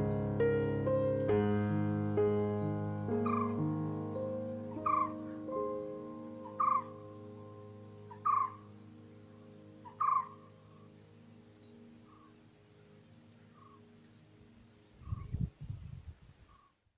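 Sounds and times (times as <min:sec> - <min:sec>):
loud bird calls: 0:02.6 - 0:09.0, 0:09.8 - 0:15.4
thin high bird chirp: 0:02.6 - 0:09.0, 0:09.8 - 0:16.9.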